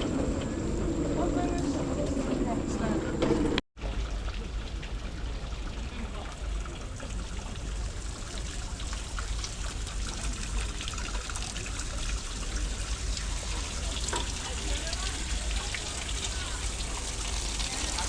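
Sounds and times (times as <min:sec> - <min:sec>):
water trickling and splashing: 0:03.8 - 0:18.0.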